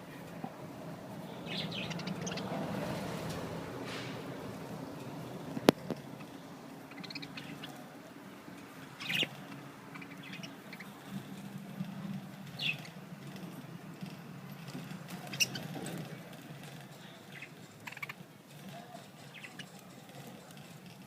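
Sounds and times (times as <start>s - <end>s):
beaks pecking seed cake: 1.1s - 4.3s, 5.1s - 13.7s, 14.6s - 16.0s, 16.8s - 20.8s
budgerigars chirping: 1.4s - 2.6s, 6.9s - 7.8s, 8.9s - 11.1s, 12.6s - 13.0s, 15.3s - 15.7s, 17.3s - 18.2s, 19.3s - 19.8s.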